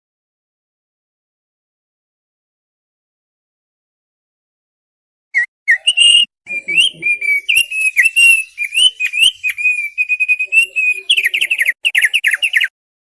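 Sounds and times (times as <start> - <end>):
white-eye singing: 5.4 - 12.7.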